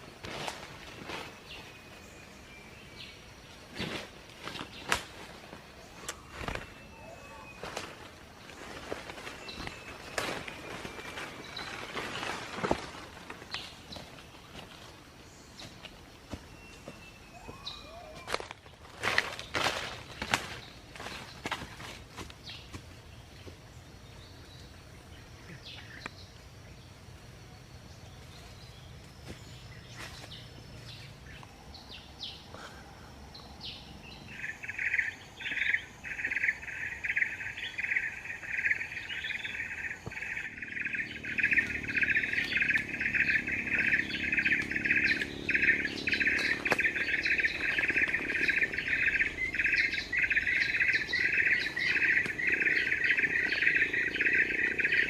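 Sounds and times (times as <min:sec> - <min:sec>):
faint chirps and clicks: 0:25.4 - 0:26.5, 0:39.8 - 0:55.0
high pulsing chirping trill: 0:36.1 - 0:55.0.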